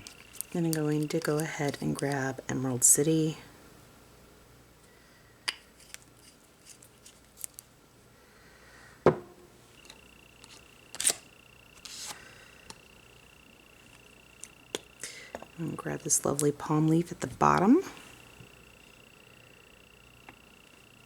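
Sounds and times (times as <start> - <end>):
faint high whine: 7.4 - 21.0
polish bottle handled on table: 9.1 - 9.5.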